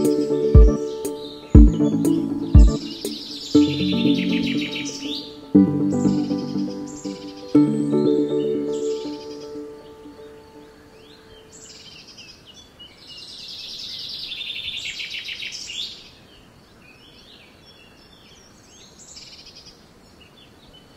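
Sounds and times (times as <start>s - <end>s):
rapid trilling birdsong: 0.0s - 5.4s
birds chirping and singing: 0.0s - 12.0s.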